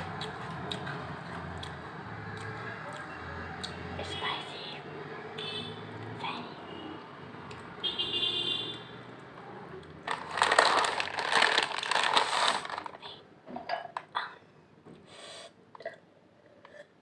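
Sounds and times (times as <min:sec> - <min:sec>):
chip bag crinkling: 0:10.1 - 0:13.1
potato chips crunching: 0:10.1 - 0:13.1.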